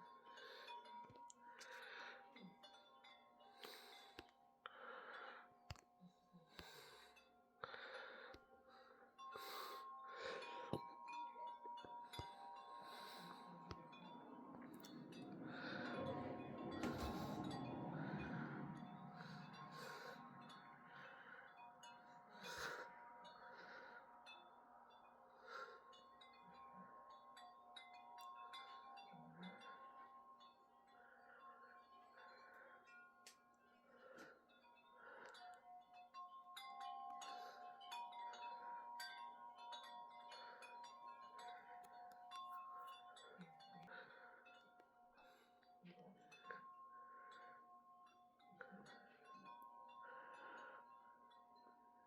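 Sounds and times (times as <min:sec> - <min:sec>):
wind chimes ringing: 0:00.0 - 0:52.0
gusty wind: 0:13.9 - 0:20.9.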